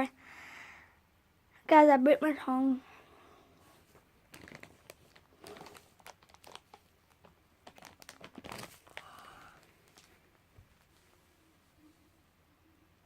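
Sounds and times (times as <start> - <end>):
plastic packaging crinkling: 4.2 - 10.3.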